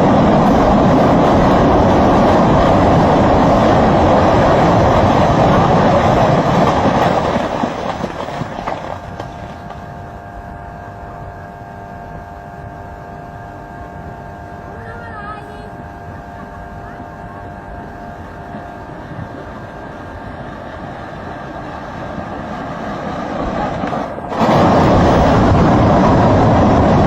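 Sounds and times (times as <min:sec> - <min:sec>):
mud waterfall rushing: 0:00.0 - 0:10.0, 0:20.4 - 0:27.0
steady hum with held tones: 0:00.0 - 0:27.0.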